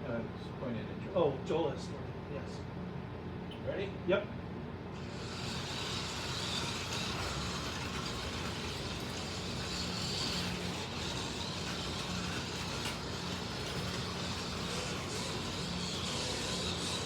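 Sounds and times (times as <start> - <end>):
slot car motors whirring: 4.9 - 17.0.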